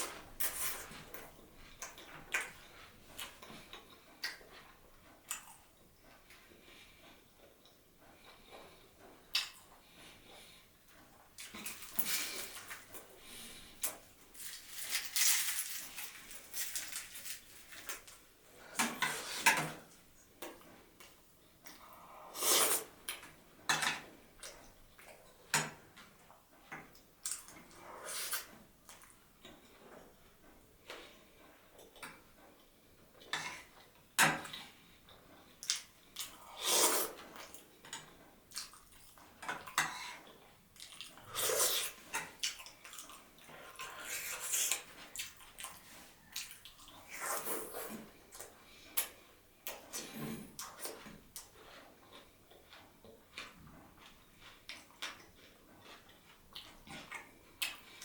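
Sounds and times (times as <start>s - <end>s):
person chewing: 38.5s - 58.0s.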